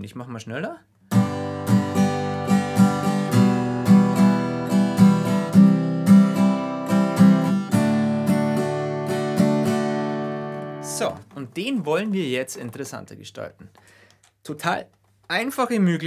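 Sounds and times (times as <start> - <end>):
acoustic guitar strumming: 1.1 - 11.8.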